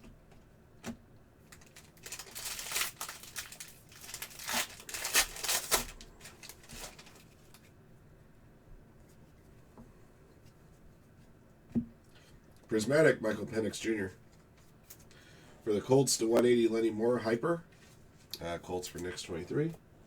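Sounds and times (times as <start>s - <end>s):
foil wrapper crinkling and tearing: 1.5s - 7.6s.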